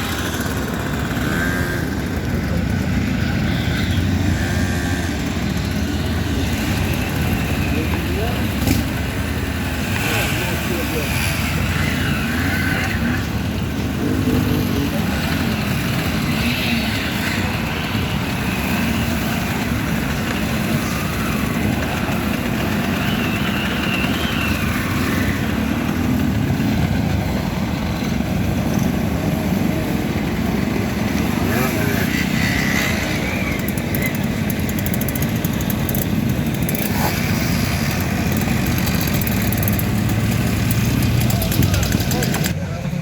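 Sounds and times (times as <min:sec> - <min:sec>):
motorcycle engines running: 0:00.0 - 0:43.0
people talking: 0:04.7 - 0:09.0, 0:10.0 - 0:12.2, 0:13.8 - 0:15.8, 0:31.4 - 0:36.0, 0:40.7 - 0:43.0.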